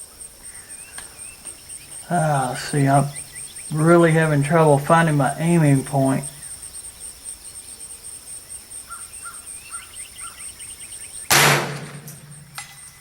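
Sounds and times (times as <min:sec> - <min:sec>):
cricket trill: 0:00.0 - 0:13.0
bird chirps: 0:00.4 - 0:13.0
rifle shot: 0:11.3 - 0:12.8.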